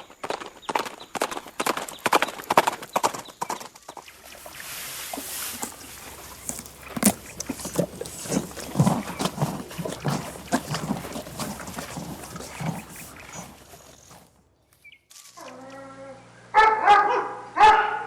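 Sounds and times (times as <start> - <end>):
animal snorting and grunting: 4.3 - 14.4.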